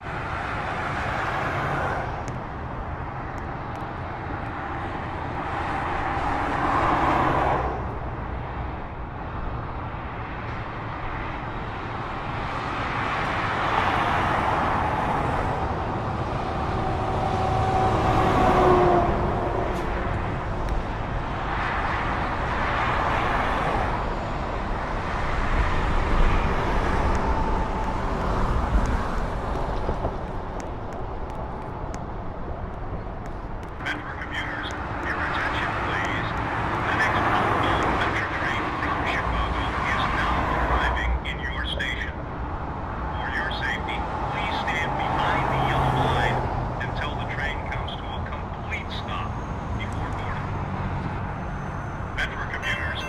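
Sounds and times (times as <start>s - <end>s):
vehicles passing: 0.0s - 53.0s.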